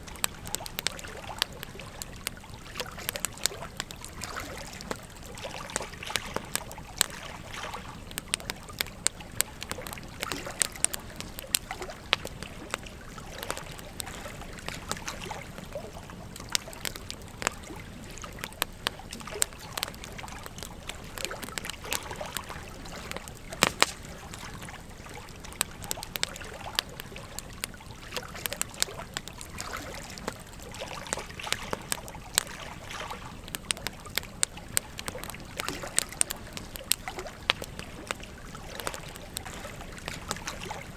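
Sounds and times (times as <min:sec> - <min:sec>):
campfire crackling and popping: 0:00.0 - 0:40.9
stream trickling: 0:00.0 - 0:40.9.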